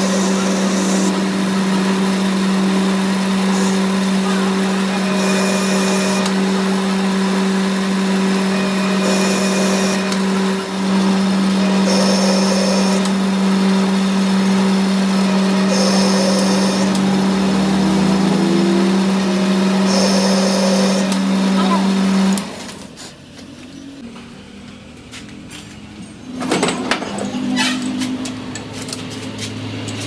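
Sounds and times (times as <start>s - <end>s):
machine motor humming: 0.0s - 30.0s.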